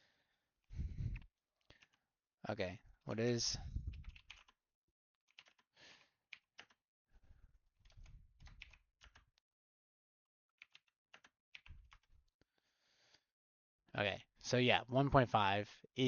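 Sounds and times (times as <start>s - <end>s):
keyboard typing and clicking: 1.1s - 2.0s, 3.8s - 4.6s, 5.3s - 6.8s, 7.8s - 9.4s, 10.6s - 12.1s.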